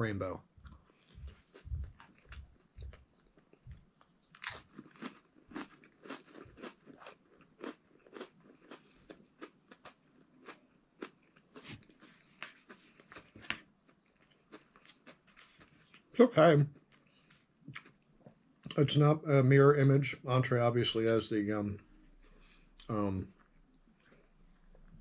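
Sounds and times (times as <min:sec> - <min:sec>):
crisp crunching of cracker: 0:00.7 - 0:16.1.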